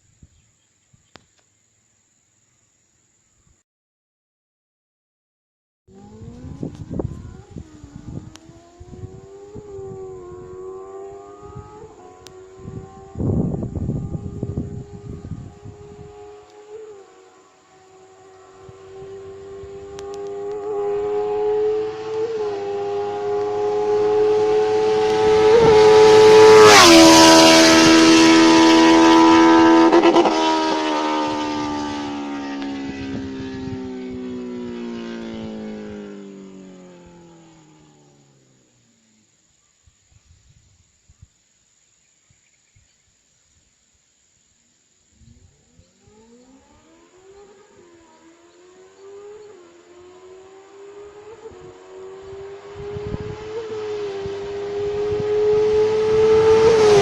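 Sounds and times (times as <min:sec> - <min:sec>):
motorcycle engine running hard: 0:05.9 - 0:38.2, 0:49.2 - 0:57.0.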